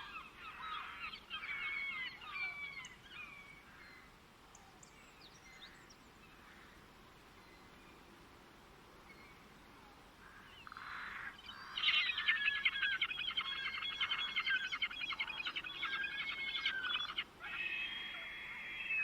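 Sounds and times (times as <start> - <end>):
faint background hiss: 0.0 - 19.0
songbird singing trills: 10.5 - 19.0.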